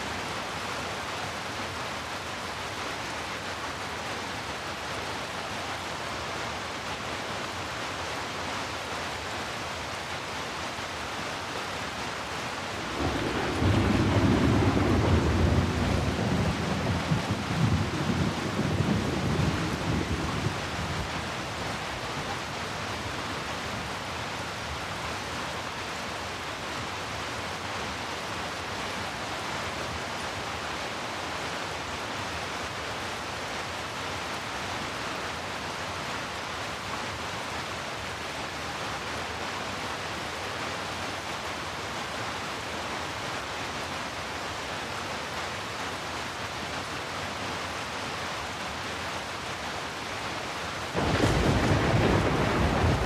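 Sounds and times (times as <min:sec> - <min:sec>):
heavy rain hiss: 0:00.0 - 0:53.0
low thunder rumble: 0:12.8 - 0:21.1, 0:51.0 - 0:53.0.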